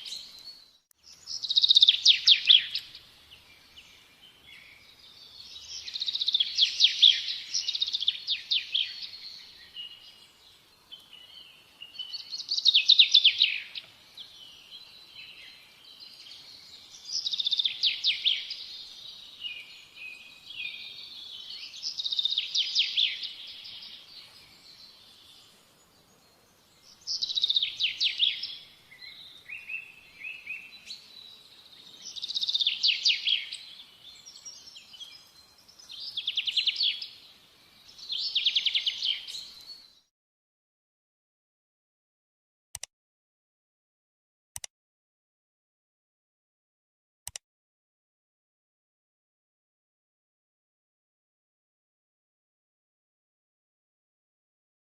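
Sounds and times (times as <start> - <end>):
soft bird chirps: 0.0 - 40.1
songbird trilling: 1.1 - 3.0, 26.9 - 31.4.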